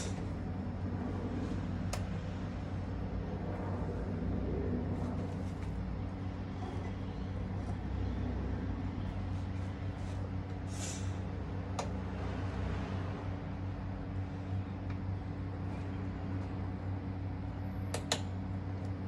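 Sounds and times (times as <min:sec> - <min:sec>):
fan humming: 0:00.0 - 0:19.0
short hiss: 0:10.7 - 0:11.2.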